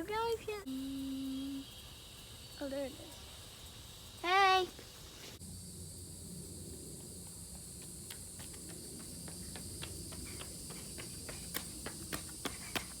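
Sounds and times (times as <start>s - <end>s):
high-pitched hiss: 0.0s - 13.0s.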